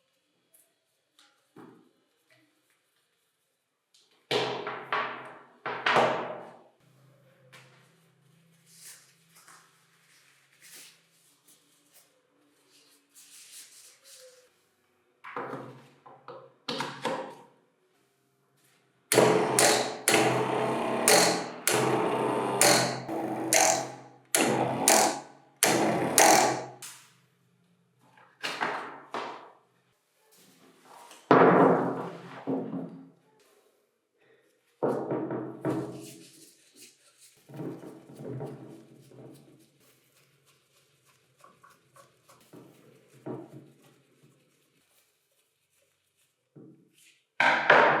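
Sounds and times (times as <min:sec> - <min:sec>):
loud ringing percussive hits: 0:22.6 - 0:26.7.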